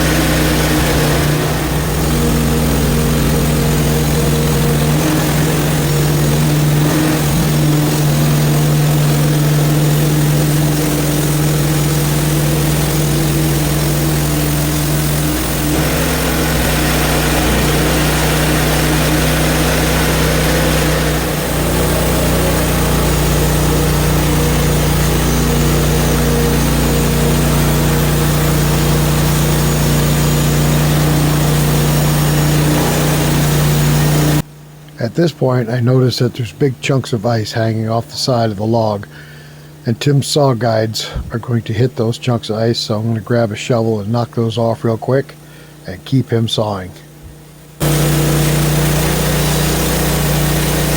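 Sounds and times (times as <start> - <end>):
saw blade cutting hiss: 0.0 - 34.4, 47.8 - 50.9
gas engine running under load: 0.0 - 34.5, 47.5 - 50.9.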